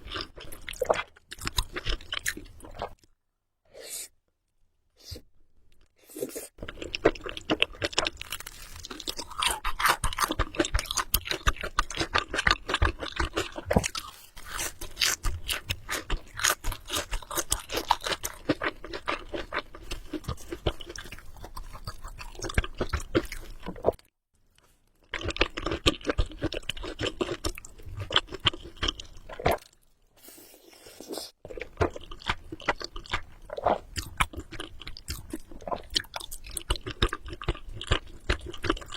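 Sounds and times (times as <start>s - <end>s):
chewing noodles with mouth clicks: 6.2s - 24.0s, 25.0s - 29.8s, 30.6s - 38.9s.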